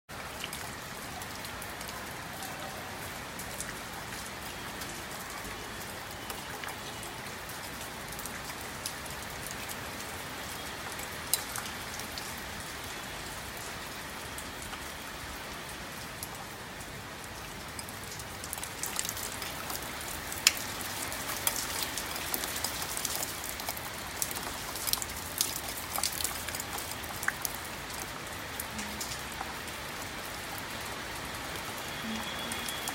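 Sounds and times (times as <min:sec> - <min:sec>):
raindrops ticking on a surface: 0:00.1 - 0:32.9
rain hissing: 0:09.8 - 0:32.9.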